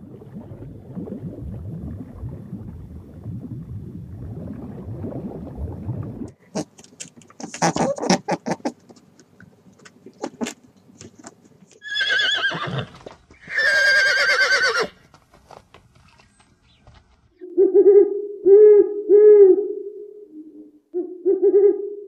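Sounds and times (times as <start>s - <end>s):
horse whinnying: 11.8s - 15.0s.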